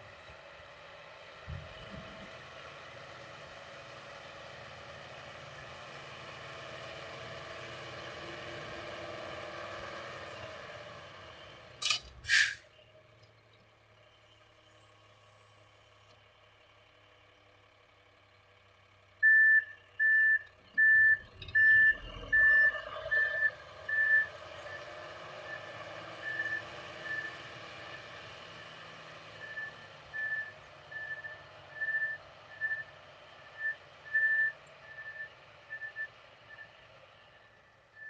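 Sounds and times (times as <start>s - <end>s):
truck engine running: 0.0s - 38.0s
air brake hisses: 12.2s - 12.7s
reversing alarm beeping: 19.2s - 24.3s, 33.5s - 36.7s.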